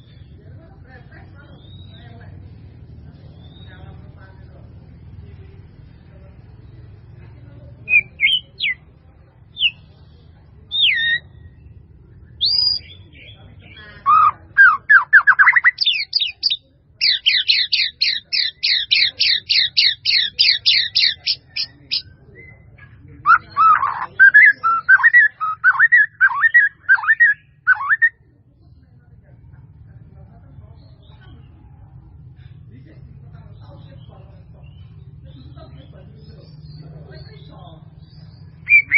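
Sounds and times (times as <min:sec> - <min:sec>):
bird calling with whistled notes: 0:07.8 - 0:08.8, 0:09.5 - 0:09.9, 0:10.7 - 0:11.6, 0:12.4 - 0:22.6, 0:23.3 - 0:28.2, 0:38.0 - 0:38.9.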